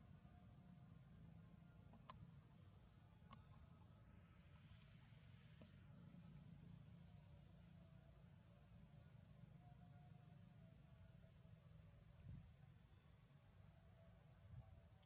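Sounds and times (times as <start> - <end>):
insects buzzing: 0.0 - 15.0
faint clicks: 1.9 - 2.3.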